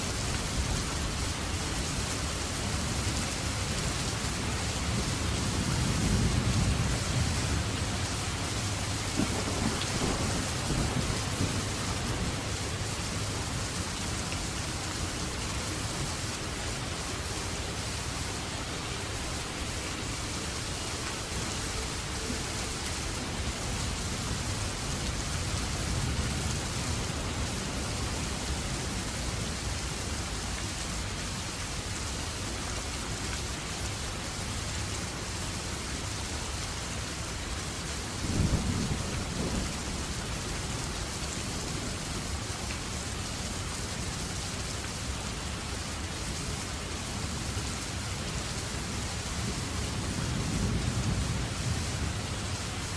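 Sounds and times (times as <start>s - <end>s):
steady rain: 0.0s - 52.9s.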